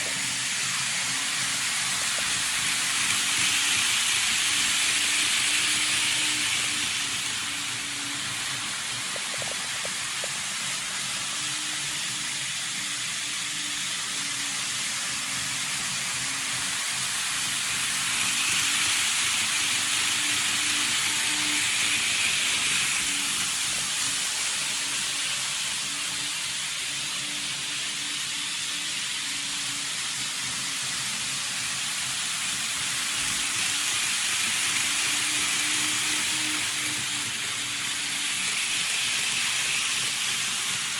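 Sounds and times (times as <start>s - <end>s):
faint motor hum: 0.0s - 40.9s
model train wheels whirring: 0.0s - 40.9s.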